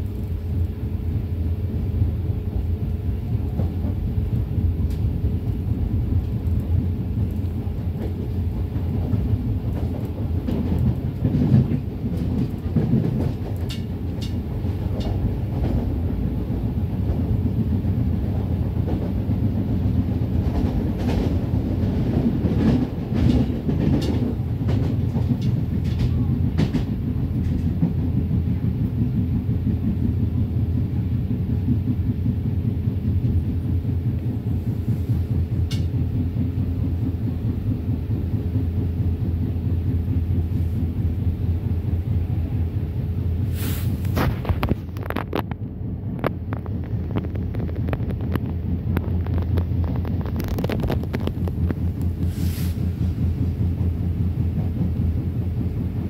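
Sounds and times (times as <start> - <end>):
train rumbling: 0.0 - 56.0
wheels clacking over rail joints: 7.6 - 16.3.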